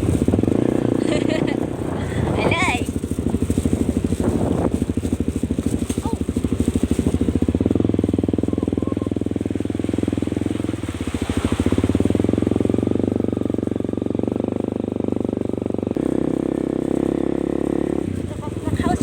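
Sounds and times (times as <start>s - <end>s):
motorcycle engine running: 0.0s - 19.0s
road and wind noise: 0.0s - 19.0s.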